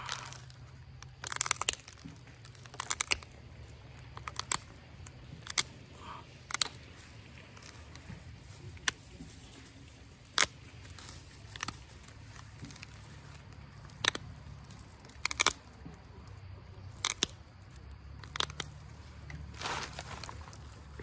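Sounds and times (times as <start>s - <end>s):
stone flakes snapping off: 0.0s - 3.4s, 10.3s - 15.8s, 16.9s - 17.5s.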